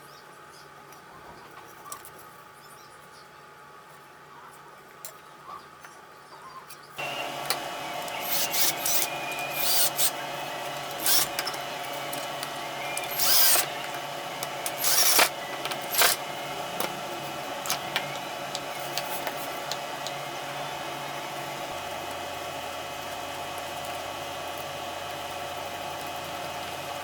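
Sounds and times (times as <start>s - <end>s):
power tool running: 7.0s - 27.0s.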